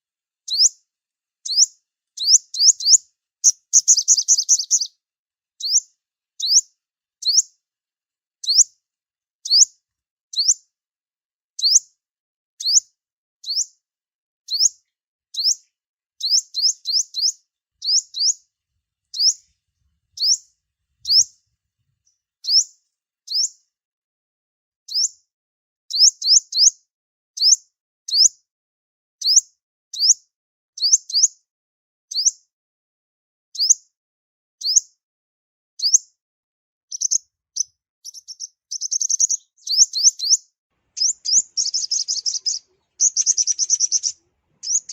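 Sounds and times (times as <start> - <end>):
sunbird chirping: 1.4 - 4.9, 16.2 - 18.4, 19.1 - 19.6, 20.2 - 21.4, 36.9 - 44.9.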